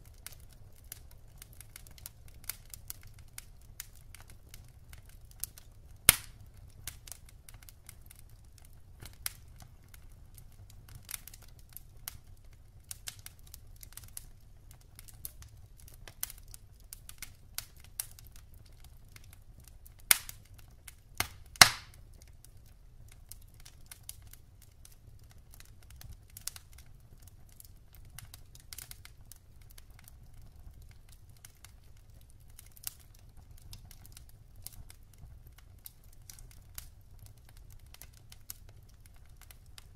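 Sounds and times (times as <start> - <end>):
wood fire crackling: 0.0 - 39.9
sharp loud pops of fire: 6.1 - 6.4, 20.1 - 20.4, 21.2 - 22.0.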